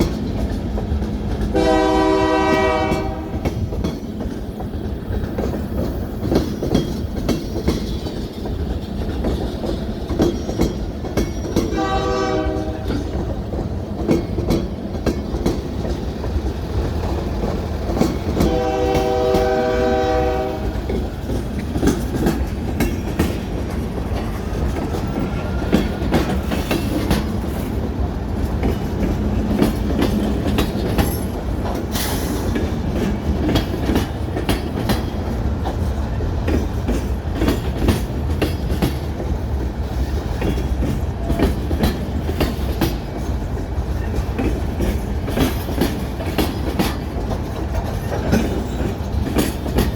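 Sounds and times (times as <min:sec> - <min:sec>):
train rumbling past: 0:00.0 - 0:49.9
wheels clacking over rail joints: 0:00.0 - 0:49.9
train horn blasts: 0:01.5 - 0:03.5, 0:11.7 - 0:13.0, 0:18.4 - 0:20.8.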